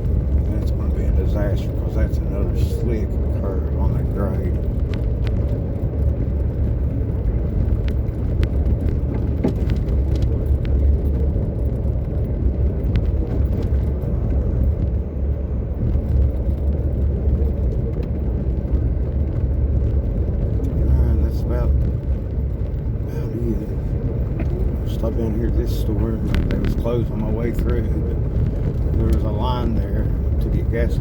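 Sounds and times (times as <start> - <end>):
vehicle driving rumble: 0.0 - 31.0.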